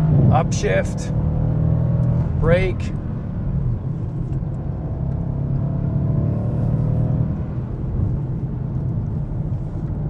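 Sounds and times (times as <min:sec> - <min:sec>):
car engine rumble: 0:00.0 - 0:10.0
road noise: 0:00.0 - 0:10.0
wind: 0:00.0 - 0:10.0.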